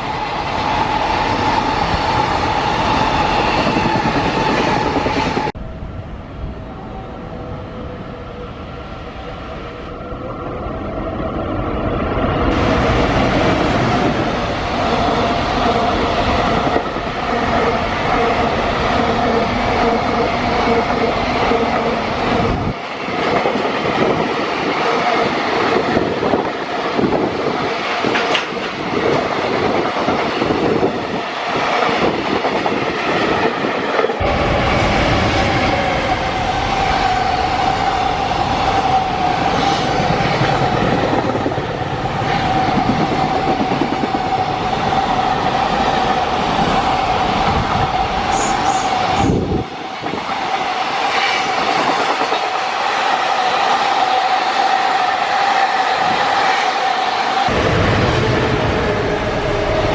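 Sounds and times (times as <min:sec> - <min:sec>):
freight train wheels clacking: 0:23.2 - 0:30.7.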